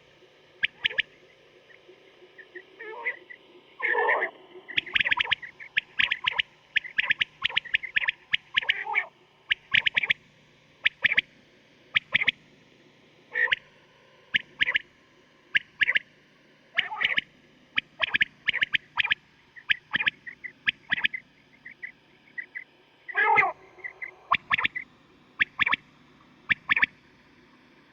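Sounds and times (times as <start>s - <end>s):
quail calling: 0.6s - 1.1s, 2.4s - 10.2s, 10.8s - 11.2s, 11.9s - 12.4s, 13.3s - 13.6s, 14.3s - 14.8s, 15.5s - 16.0s, 16.8s - 24.8s, 25.4s - 25.8s, 26.5s - 26.9s
lower coarse quail calls: 0.6s - 1.2s, 2.4s - 10.2s, 10.8s - 11.3s, 11.9s - 12.4s, 13.3s - 13.6s, 14.3s - 14.9s, 15.5s - 16.1s, 16.7s - 25.8s, 26.5s - 27.0s.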